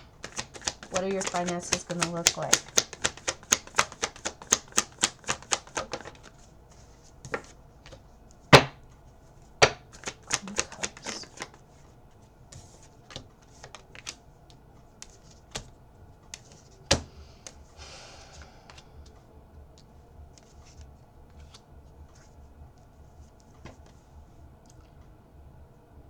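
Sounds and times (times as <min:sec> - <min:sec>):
cards clicking: 0:00.0 - 0:06.4, 0:07.3 - 0:08.0, 0:09.6 - 0:11.6, 0:12.5 - 0:14.2, 0:15.0 - 0:15.7
cards snapping: 0:00.0 - 0:06.4, 0:07.3 - 0:08.0, 0:09.6 - 0:11.6, 0:13.1 - 0:14.2
cards rustling: 0:00.0 - 0:08.8, 0:09.6 - 0:11.9, 0:12.5 - 0:14.2, 0:15.0 - 0:15.7.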